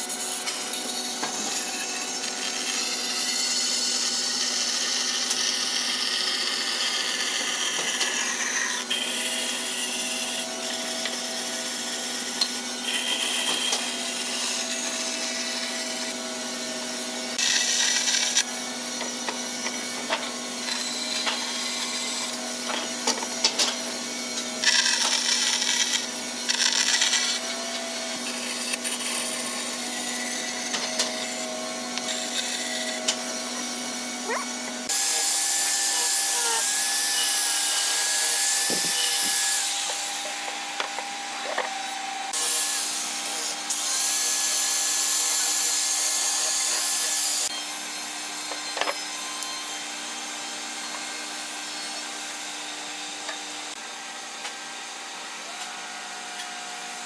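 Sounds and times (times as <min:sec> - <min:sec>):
wood rasping or sawing: 0:00.0 - 0:47.5.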